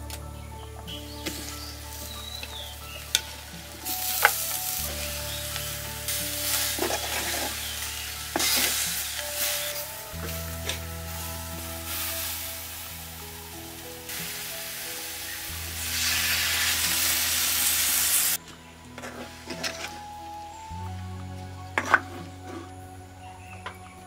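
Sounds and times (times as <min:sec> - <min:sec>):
fruit sizzling in a pot: 0:01.0 - 0:18.4.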